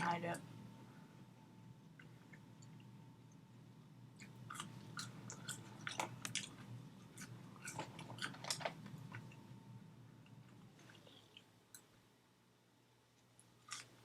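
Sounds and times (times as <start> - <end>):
steady low hum: 0.0 - 14.0
crunchy chewing: 4.2 - 9.4, 13.3 - 14.0.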